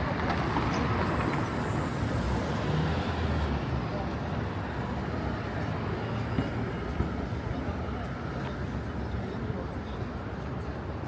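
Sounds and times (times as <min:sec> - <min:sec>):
road traffic rumble: 0:00.0 - 0:08.4.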